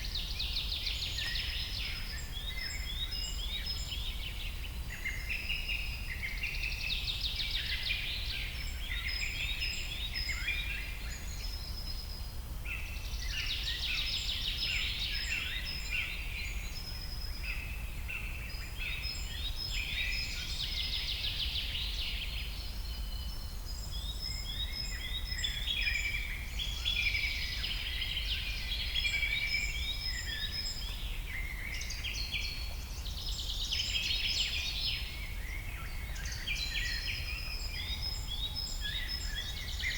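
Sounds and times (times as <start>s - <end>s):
forest birds singing: 0.0s - 39.9s.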